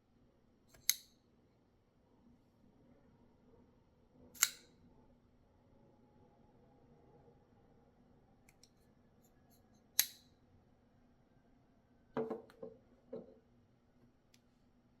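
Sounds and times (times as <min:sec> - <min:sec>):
knife blade metallic snap: 0:00.8 - 0:01.1, 0:04.4 - 0:04.7, 0:10.0 - 0:10.2.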